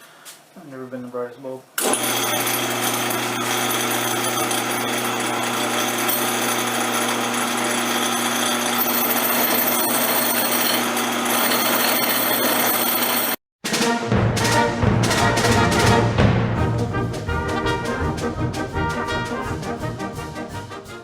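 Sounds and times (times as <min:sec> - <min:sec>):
bench grinder motor hum: 0:01.8 - 0:13.4.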